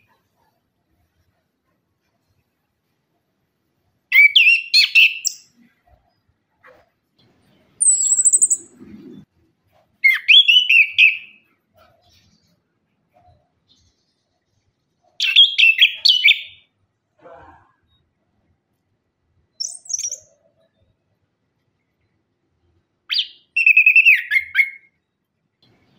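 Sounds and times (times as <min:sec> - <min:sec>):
high thin bird trill: 0:07.8 - 0:08.8, 0:19.6 - 0:20.3.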